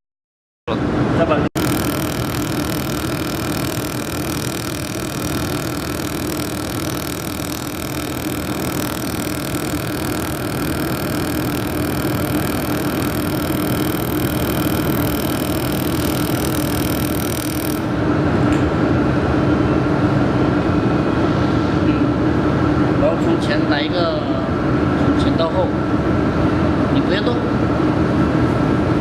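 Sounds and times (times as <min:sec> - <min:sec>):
high whining tones: 0:01.6 - 0:18.0
laser welding machine humming: 0:01.6 - 0:18.4.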